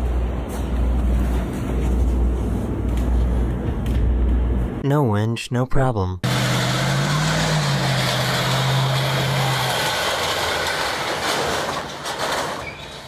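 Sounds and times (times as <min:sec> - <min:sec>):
vehicle engine running: 0:06.2 - 0:12.4.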